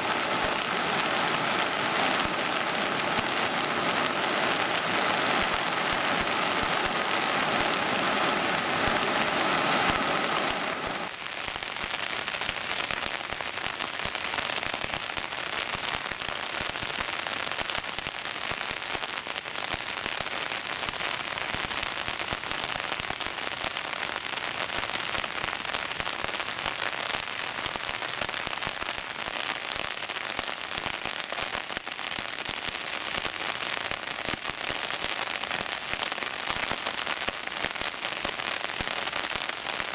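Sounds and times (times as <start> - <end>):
loud rushing noise: 0.0 - 11.1
rain pattering: 0.0 - 39.9.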